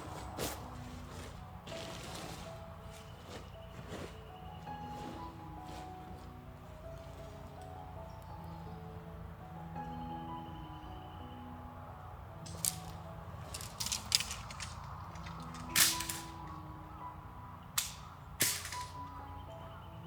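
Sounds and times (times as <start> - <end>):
soft music with mallet notes: 0.0 - 20.0
sharp cracks: 12.5 - 16.6, 17.8 - 19.2.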